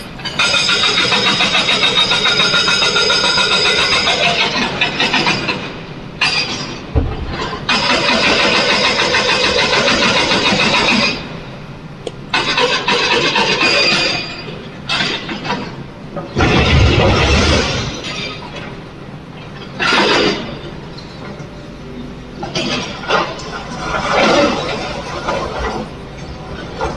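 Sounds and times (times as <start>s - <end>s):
diesel machinery engines revving: 0.0s - 5.8s.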